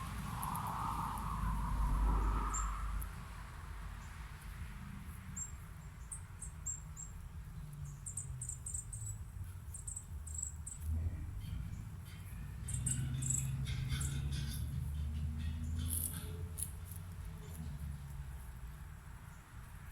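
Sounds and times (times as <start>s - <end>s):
small birds chirping high: 5.3s - 16.3s
low steady rumble: 6.7s - 19.9s.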